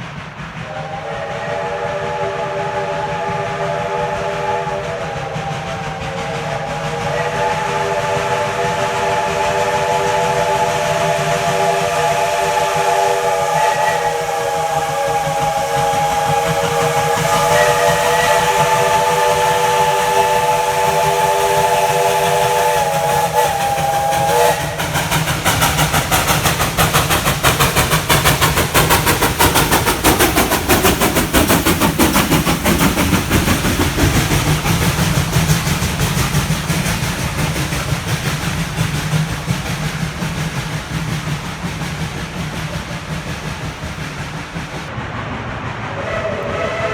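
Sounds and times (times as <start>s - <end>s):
steam locomotive chime whistle: 0.0s - 38.6s, 45.9s - 46.9s
locomotive exhaust beats: 0.0s - 46.9s.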